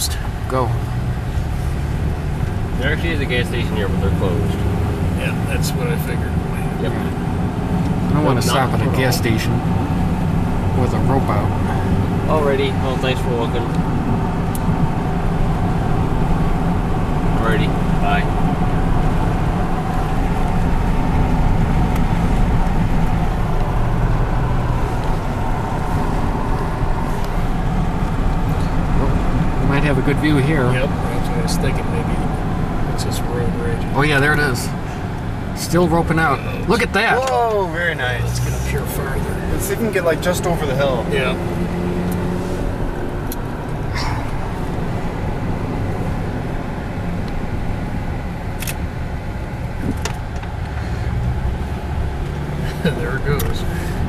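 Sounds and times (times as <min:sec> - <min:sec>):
road and engine rumble: 0:00.0 - 0:54.0
sharp clicks: 0:48.6 - 0:48.8.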